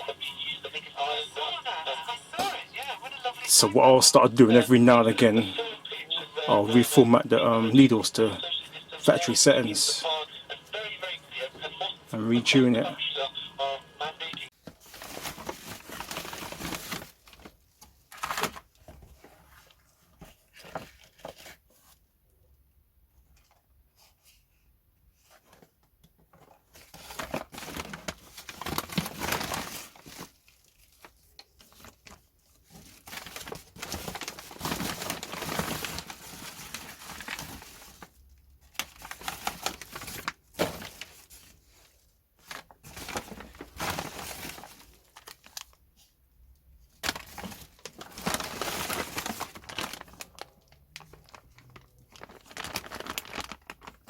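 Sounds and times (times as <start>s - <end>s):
crinkling and rustling handling noise: 0.0s - 54.0s.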